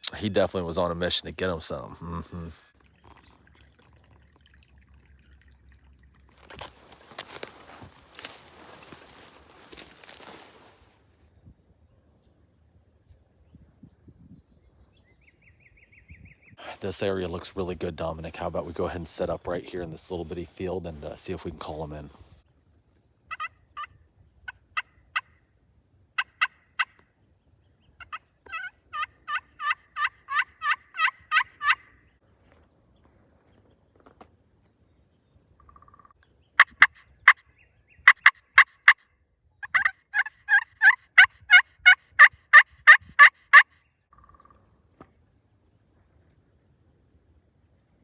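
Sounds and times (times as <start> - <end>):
turkey call yelps: 23.3 - 25.4, 28.0 - 32.0, 38.0 - 39.0, 39.6 - 44.5.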